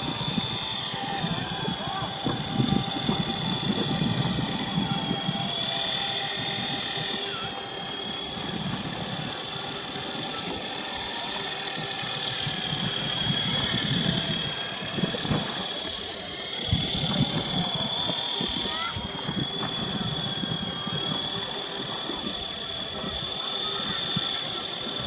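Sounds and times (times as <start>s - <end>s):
electric motor high whine: 0.0s - 25.0s.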